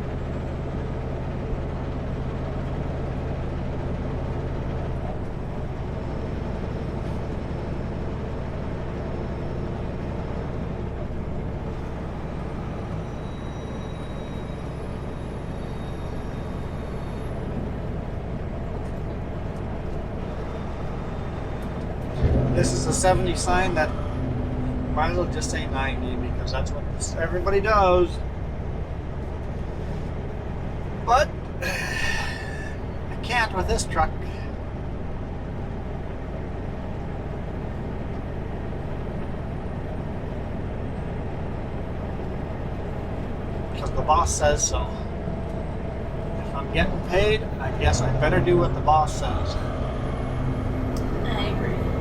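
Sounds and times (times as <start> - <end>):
diesel engine drone: 0.0 - 52.0
road noise: 0.0 - 52.0.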